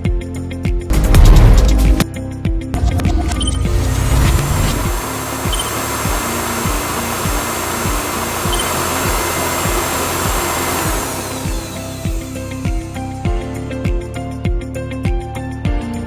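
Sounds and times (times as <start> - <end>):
hair dryer running: 2.8 - 14.2
high-pitched motor whine: 2.8 - 14.3.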